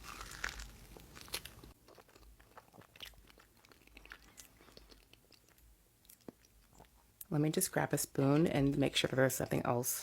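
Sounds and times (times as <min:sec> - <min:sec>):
crunching of pastry: 0:00.0 - 0:07.0.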